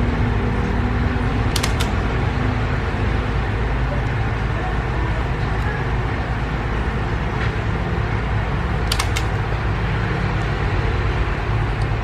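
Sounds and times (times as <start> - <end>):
quick clicks: 1.2 - 2.2, 8.8 - 9.6.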